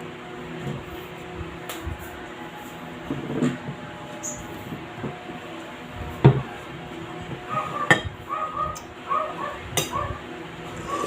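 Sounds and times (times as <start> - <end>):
tableware clinking against dishes: 7.9 - 8.1.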